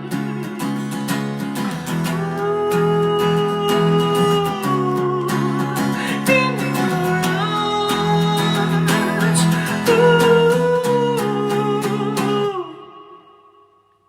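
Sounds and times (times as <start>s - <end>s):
acoustic guitar strumming: 0.0s - 13.9s.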